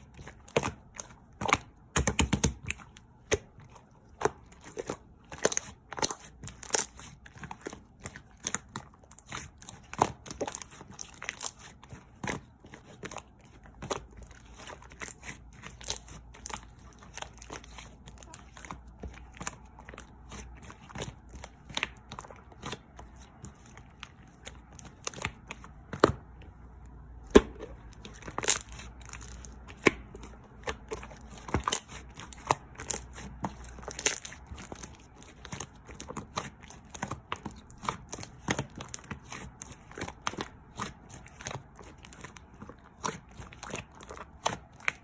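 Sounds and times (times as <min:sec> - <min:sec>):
material crinkling and tearing: 0:27.4 - 0:45.0.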